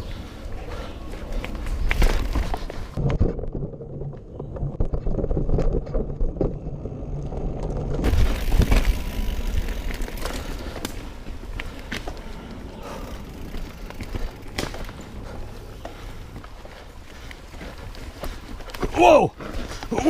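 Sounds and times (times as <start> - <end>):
bike tyres rumbling on dirt: 0.0 - 20.0
bike knocks and rattles: 1.4 - 16.8.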